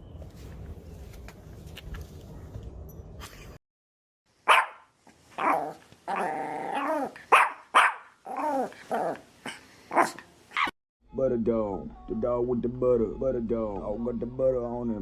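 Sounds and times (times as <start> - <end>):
dog barking: 4.4 - 8.7, 9.9 - 10.7
dog growling call: 5.4 - 7.2, 8.2 - 10.2.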